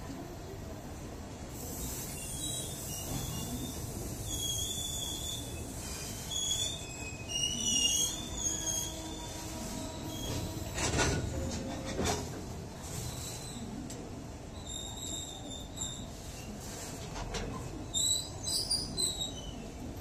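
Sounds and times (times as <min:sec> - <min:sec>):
high wheel squeals: 0:02.2 - 0:10.8.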